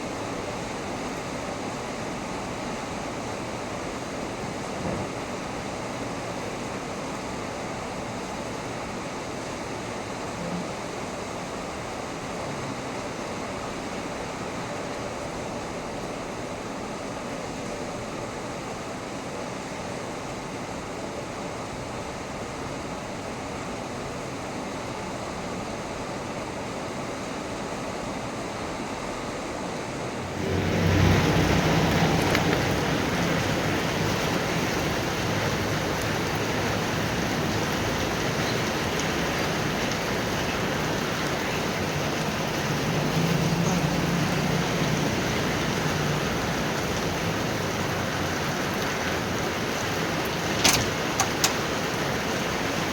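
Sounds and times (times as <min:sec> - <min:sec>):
heavy rain falling: 0:30.1 - 0:52.9.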